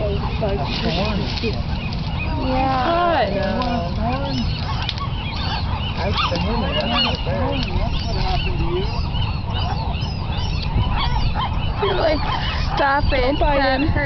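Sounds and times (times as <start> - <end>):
gulls squawking: 0.0 - 14.0.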